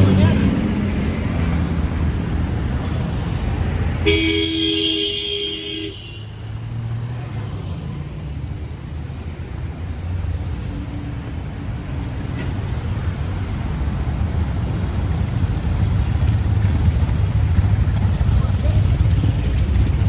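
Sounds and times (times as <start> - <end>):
rumble of passing cars: 0.0 - 20.0
car horn honking: 4.0 - 6.5.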